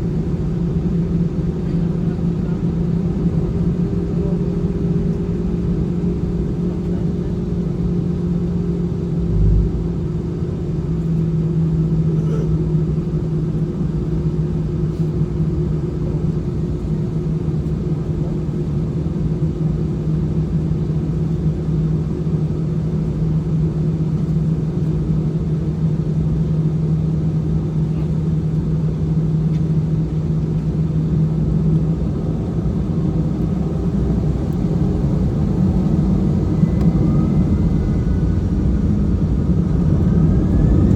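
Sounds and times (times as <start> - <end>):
airliner engines from inside cabin: 0.0 - 40.9
low thump: 9.3 - 9.9.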